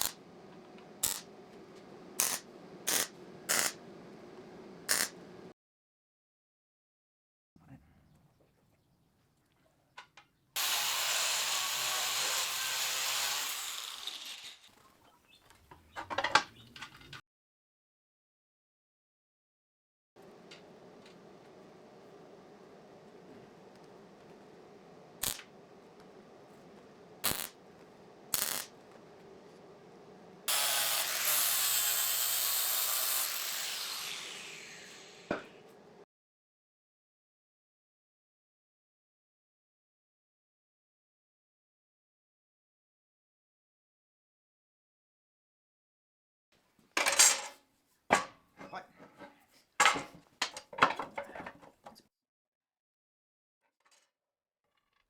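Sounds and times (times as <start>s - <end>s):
angle grinder on steel: 0.0s - 1.4s, 2.2s - 3.9s, 4.9s - 5.3s, 10.6s - 14.7s, 25.2s - 25.5s, 27.2s - 27.6s, 28.3s - 28.8s, 30.4s - 35.9s.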